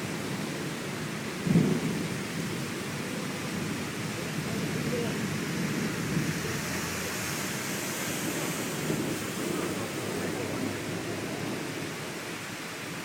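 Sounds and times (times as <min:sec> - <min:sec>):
heavy rain hiss: 0:00.0 - 0:13.0.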